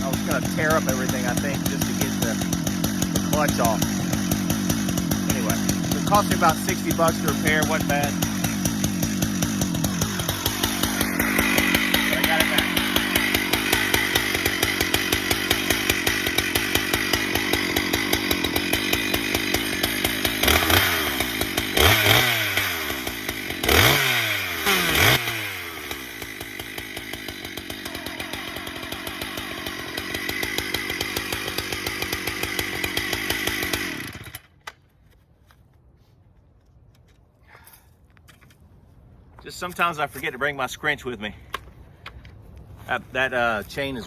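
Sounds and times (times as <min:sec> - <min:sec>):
chainsaw running and revving: 0:00.0 - 0:34.5.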